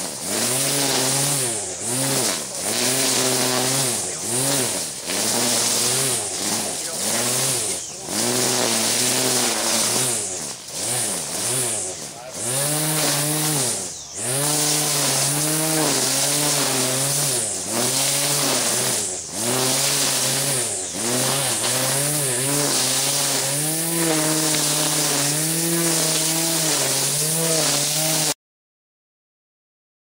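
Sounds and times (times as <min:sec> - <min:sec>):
car engine running unevenly: 0:11.7 - 0:12.4.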